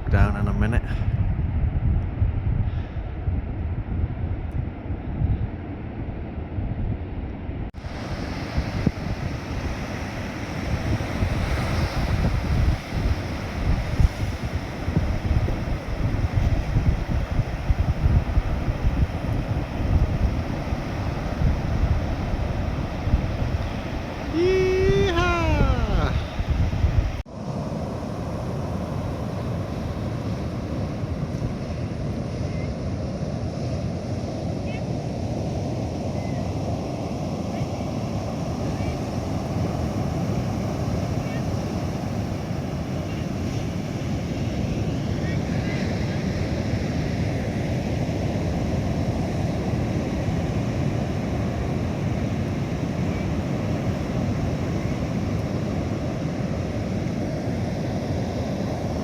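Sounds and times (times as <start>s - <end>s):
wind buffeting microphone: 0.0s - 27.2s
surf breaking on beach: 7.7s - 59.0s.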